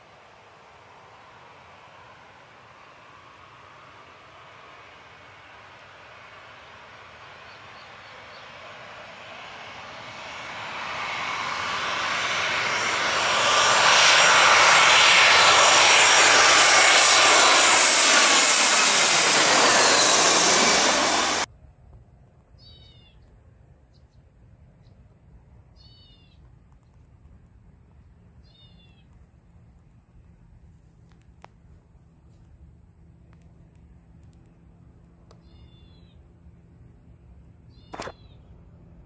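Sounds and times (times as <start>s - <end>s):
jet airliner passing overhead: 0.0s - 21.5s.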